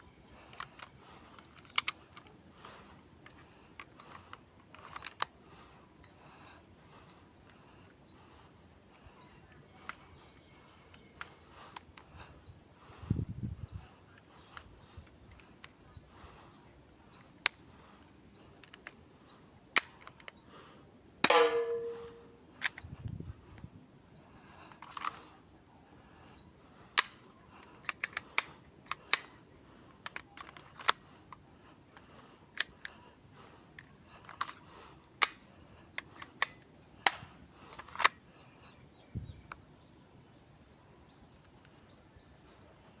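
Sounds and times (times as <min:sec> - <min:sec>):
airsoft pistol shots: 0:21.2 - 0:22.3.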